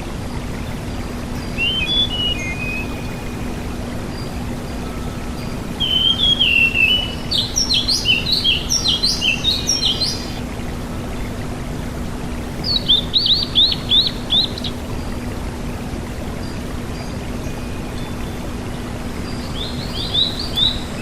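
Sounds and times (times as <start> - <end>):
rushing water-like noise: 0.0 - 21.0
bird singing whistled notes: 1.5 - 10.4, 12.6 - 15.0, 19.3 - 21.0.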